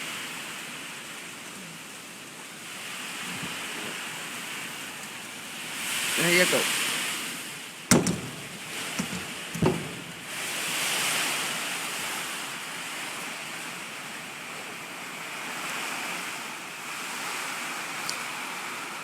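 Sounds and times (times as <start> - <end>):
heavy rain: 0.0 - 19.0
gusting wind: 2.6 - 18.0
short thump: 7.9 - 10.4.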